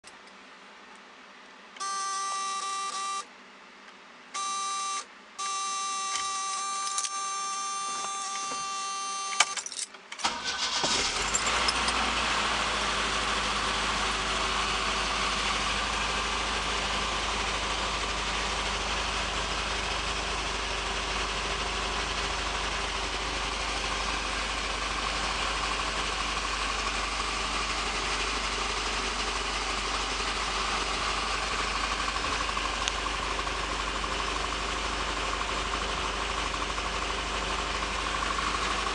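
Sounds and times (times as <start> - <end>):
electrical whine: 4.4 - 9.9
starter motor cranking: 10.2 - 12.0
car engine idling: 10.2 - 38.9.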